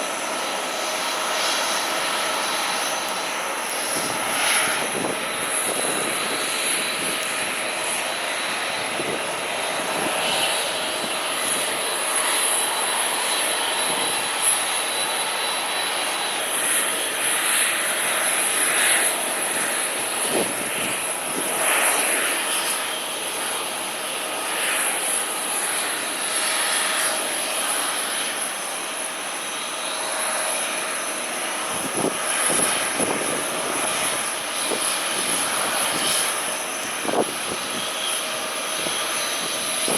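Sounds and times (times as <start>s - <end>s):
aircraft engines roaring: 0.0s - 39.9s
wind buffeting microphone: 3.7s - 14.5s, 17.9s - 22.6s, 31.7s - 39.9s.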